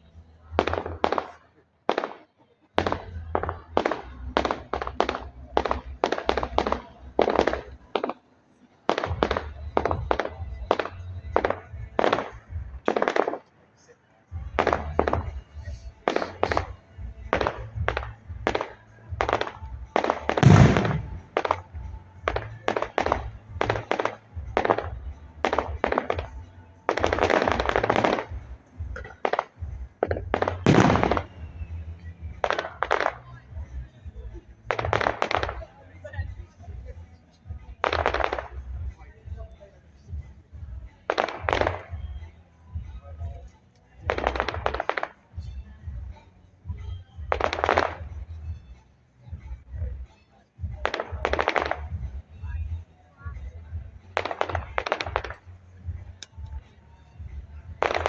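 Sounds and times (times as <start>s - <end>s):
music: 0.0s - 58.0s
fireworks sharp bangs: 0.5s - 8.3s, 8.9s - 13.5s, 14.3s - 36.9s, 37.5s - 39.5s, 40.1s - 43.4s, 44.0s - 48.6s, 50.6s - 52.6s, 53.4s - 58.0s
steady low rumble: 14.4s - 44.8s.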